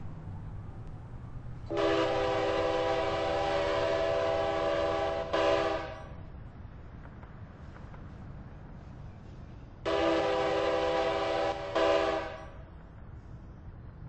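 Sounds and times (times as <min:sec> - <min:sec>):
low train rumble: 0:00.0 - 0:14.0
locomotive air horn blasts: 0:01.7 - 0:06.2, 0:09.9 - 0:12.6.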